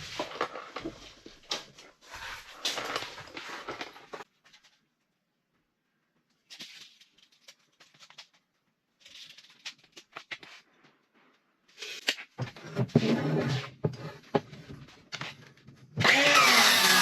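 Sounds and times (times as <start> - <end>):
power saw motor: 16.0 - 17.0.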